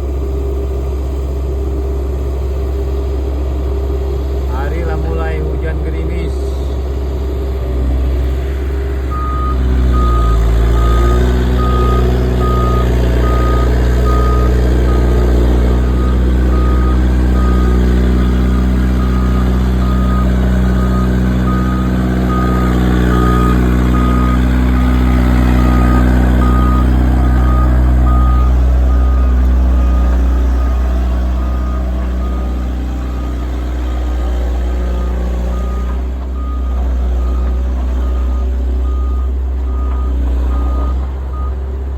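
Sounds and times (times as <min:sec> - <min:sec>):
diesel engine running under load: 0:00.0 - 0:41.9
reversing alarm beeping: 0:09.1 - 0:41.6.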